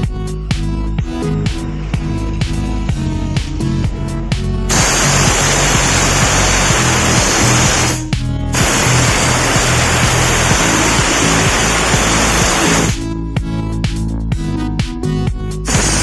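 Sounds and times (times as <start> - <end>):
background music: 0.0 - 16.0
steam wash gun hissing: 4.7 - 13.0, 15.7 - 16.0.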